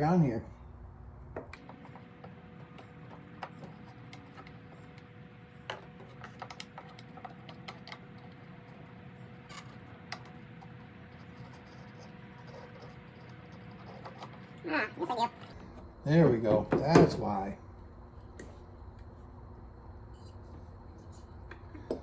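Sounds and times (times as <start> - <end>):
faint steady hum: 0.0 - 22.0
clicks and taps of hard parts: 1.4 - 8.8.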